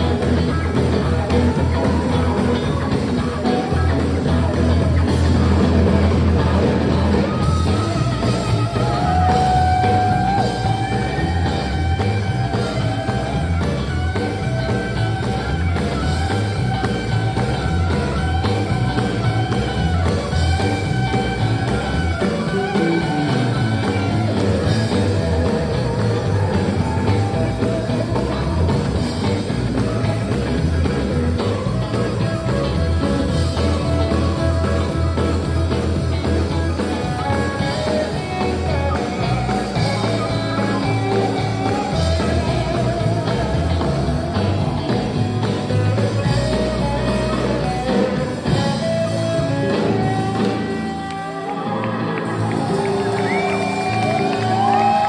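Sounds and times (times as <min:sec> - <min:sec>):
bass and drum groove: 0:00.0 - 0:55.0
sliding steel guitar: 0:00.0 - 0:55.0.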